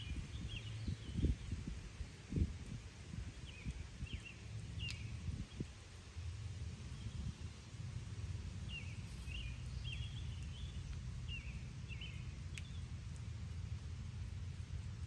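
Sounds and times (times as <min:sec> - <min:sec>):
low background rumble: 0:00.0 - 0:15.0
bird chirping: 0:08.7 - 0:12.8.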